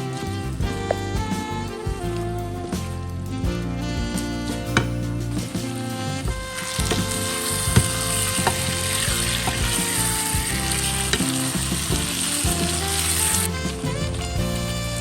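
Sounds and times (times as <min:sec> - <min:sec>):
background music: 0:00.0 - 0:15.0
food sizzling in a pan: 0:06.6 - 0:15.0.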